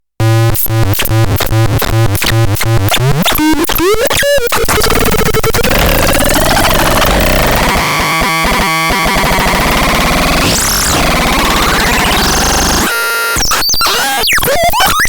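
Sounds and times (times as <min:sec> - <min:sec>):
electronic glitch: 0:00.2 - 0:15.0
synthesizer notes: 0:03.1 - 0:13.0.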